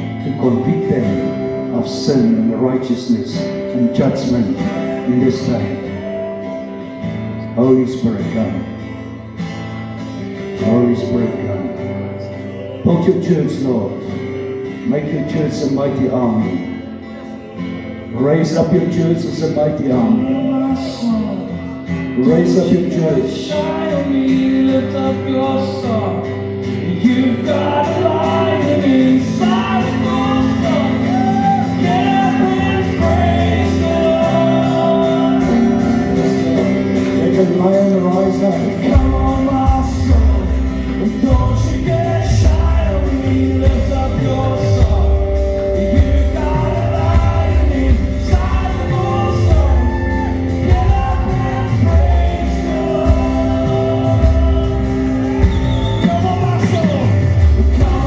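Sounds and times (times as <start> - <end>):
man singing: 0.0 - 8.8, 10.5 - 58.0
band playing: 0.0 - 58.0
heavy bass and drum beat: 38.1 - 58.0.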